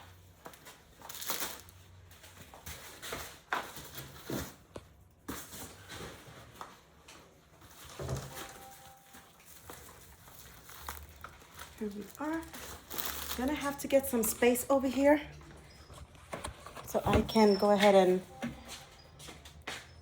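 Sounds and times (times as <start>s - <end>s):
packaging rustling and scraping: 0.1s - 20.0s.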